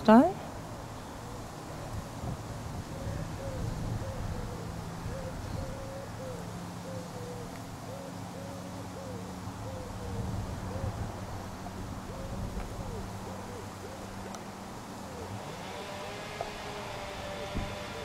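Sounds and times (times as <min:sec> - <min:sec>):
bird cooing: 0:01.0 - 0:02.0, 0:02.8 - 0:18.0.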